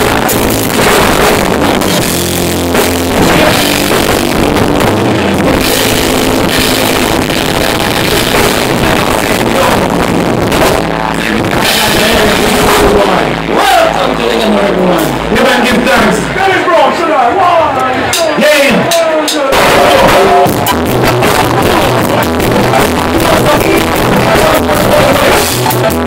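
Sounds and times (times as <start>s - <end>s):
live rock band playing: 0.0s - 16.7s, 17.7s - 26.0s.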